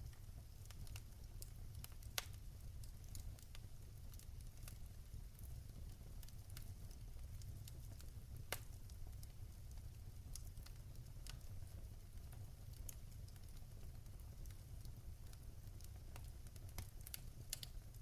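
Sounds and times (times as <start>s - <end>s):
fire crackling: 0.0s - 18.0s.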